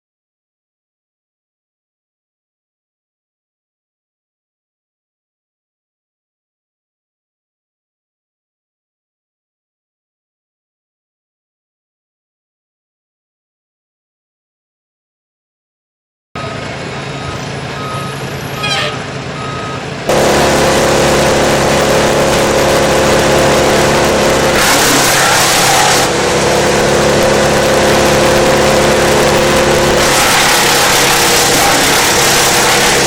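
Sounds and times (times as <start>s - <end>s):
short beeps: 16.4s - 19.8s
diesel wood chipper running: 16.4s - 33.0s.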